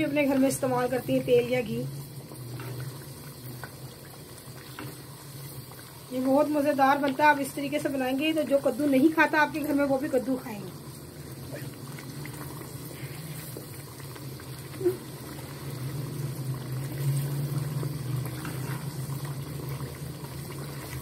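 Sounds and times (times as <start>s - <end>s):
meat frying and bubbling in oil: 0.0s - 21.0s
spatula stirring: 17.8s - 19.9s.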